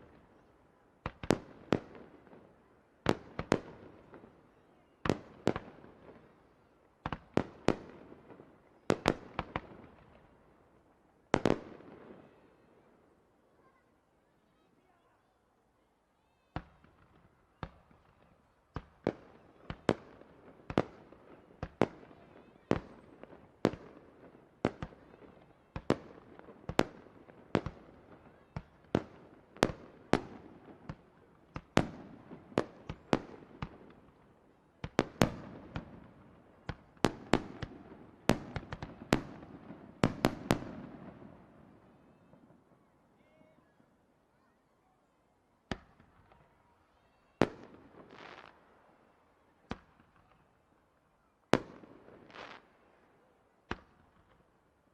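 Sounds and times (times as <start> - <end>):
fireworks crackle and rumble: 16.2 - 44.5, 45.6 - 54.9
fireworks bursting: 34.8 - 42.5, 47.1 - 48.6.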